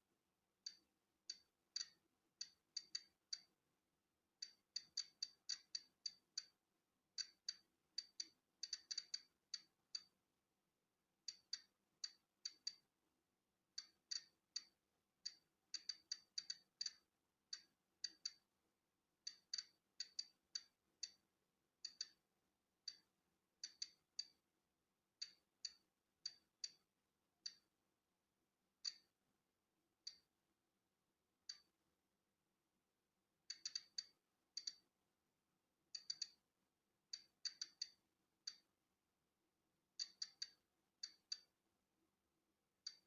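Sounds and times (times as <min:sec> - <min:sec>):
geiger counter clicking: 0:00.7 - 0:03.6, 0:04.4 - 0:06.6, 0:07.2 - 0:10.1, 0:11.3 - 0:12.8, 0:13.8 - 0:18.4, 0:19.2 - 0:21.2, 0:21.8 - 0:22.2, 0:22.8 - 0:24.4, 0:25.2 - 0:26.8, 0:28.8 - 0:29.1, 0:30.1 - 0:30.3, 0:31.5 - 0:31.7, 0:33.5 - 0:34.9, 0:36.0 - 0:36.4, 0:37.1 - 0:38.6, 0:40.0 - 0:41.5.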